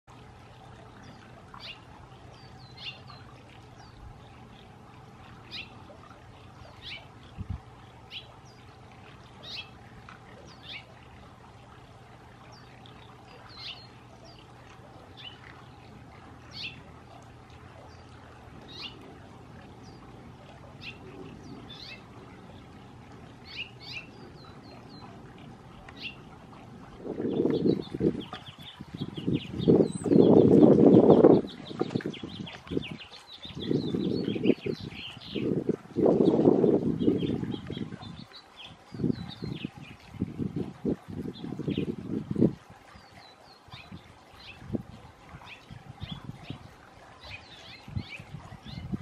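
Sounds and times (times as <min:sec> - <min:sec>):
bird chirping: 0:27.3 - 0:35.5.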